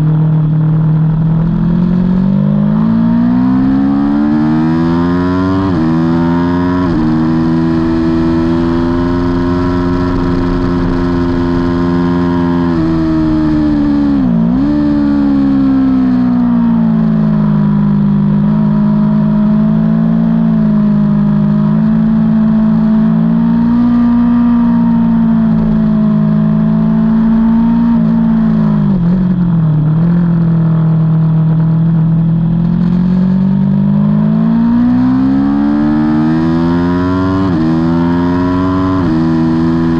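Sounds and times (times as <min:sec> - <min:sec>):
motorcycle engine revving hard: 0:00.0 - 0:39.9.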